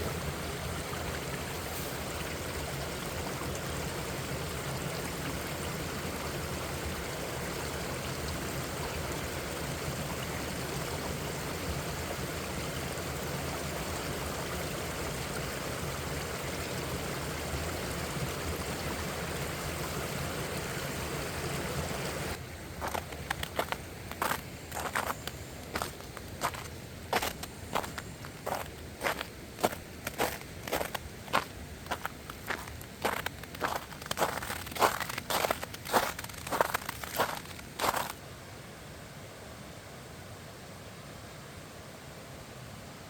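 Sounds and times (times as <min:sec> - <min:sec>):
stream rushing over rocks: 0:00.0 - 0:43.0
short irregular crunches: 0:22.8 - 0:38.2.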